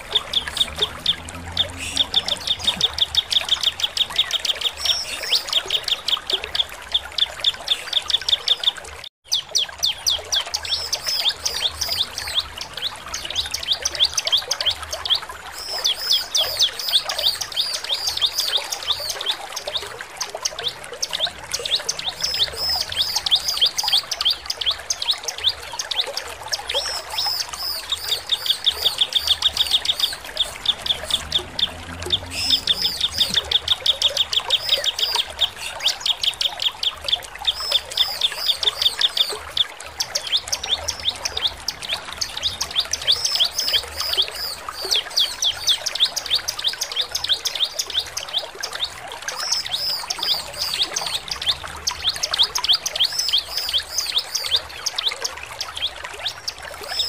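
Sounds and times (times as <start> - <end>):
bird singing chipping notes: 26.7 - 36.4.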